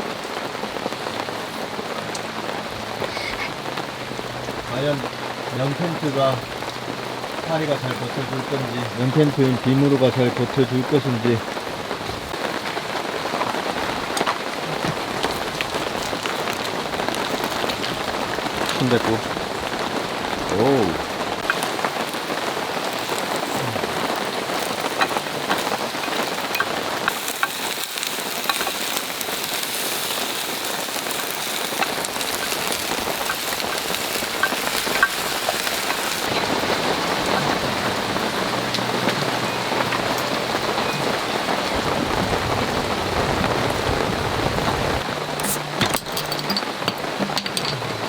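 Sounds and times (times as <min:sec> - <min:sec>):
heavy rain falling: 0:00.0 - 0:48.0.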